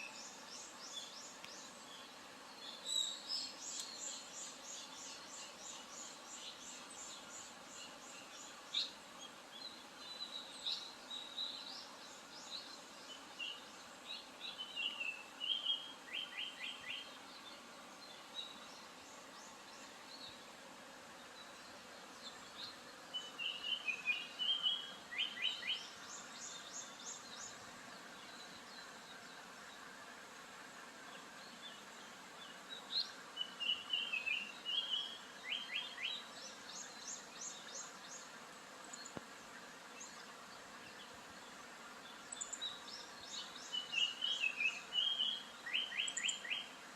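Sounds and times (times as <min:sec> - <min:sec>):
bird singing: 0:00.0 - 0:20.4, 0:22.2 - 0:27.6, 0:32.4 - 0:38.3, 0:42.0 - 0:46.7
background hiss: 0:00.0 - 0:46.9.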